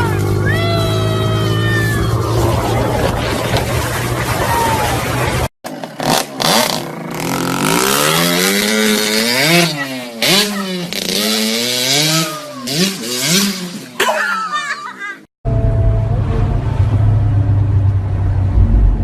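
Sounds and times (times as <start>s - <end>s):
motorcycle engine revving: 5.0s - 14.0s.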